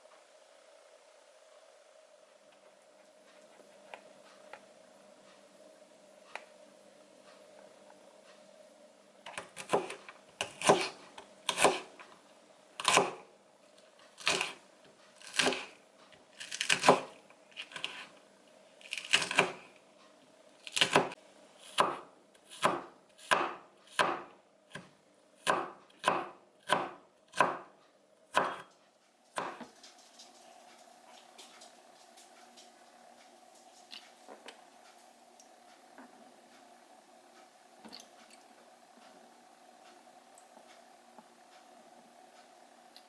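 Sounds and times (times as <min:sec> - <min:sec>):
knife chopping on cutting board: 0:09.3 - 0:11.9, 0:12.8 - 0:13.2, 0:15.3 - 0:15.7, 0:20.7 - 0:27.7, 0:28.3 - 0:28.7, 0:29.4 - 0:29.7.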